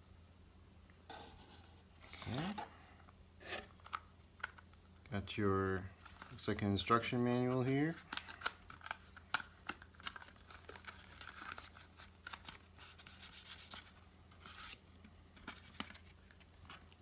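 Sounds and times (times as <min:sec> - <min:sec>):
paper rustling and crinkling: 0:05.9 - 0:14.8, 0:15.4 - 0:17.0.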